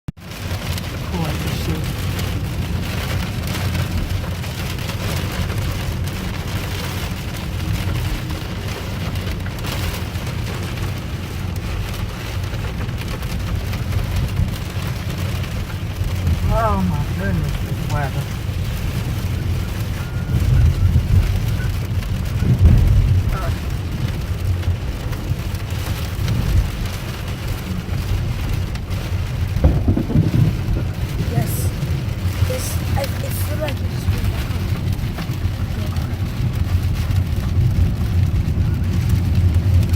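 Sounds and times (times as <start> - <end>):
rain on car roof: 0.1 - 39.9
low car rumble: 0.2 - 39.9.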